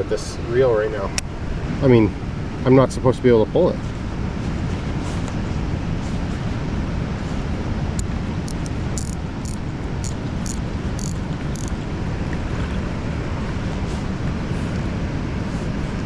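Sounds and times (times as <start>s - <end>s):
wind: 0.0s - 16.0s
sharp high clicks: 8.5s - 11.8s.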